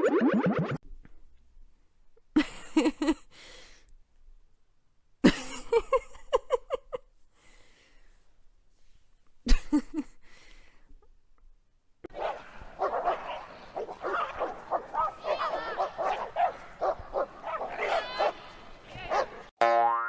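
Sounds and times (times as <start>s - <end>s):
dog barking and yipping: 12.1s - 18.4s, 19.0s - 19.5s.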